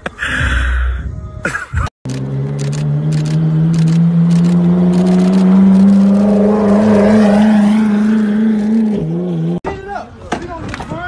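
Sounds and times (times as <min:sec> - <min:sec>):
sports car engine passing slowly: 0:02.2 - 0:09.6.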